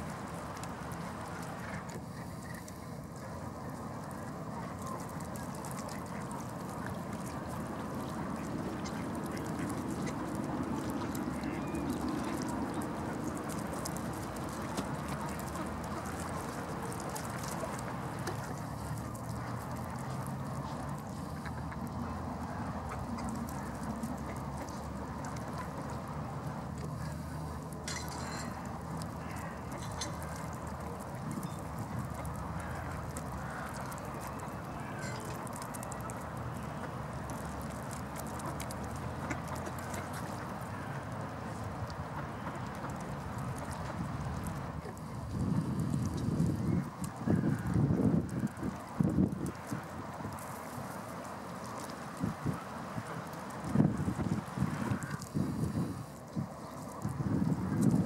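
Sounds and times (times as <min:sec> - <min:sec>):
water sounds: 0:00.0 - 0:58.0
ducks quacking: 0:04.6 - 0:28.5, 0:29.2 - 0:41.3.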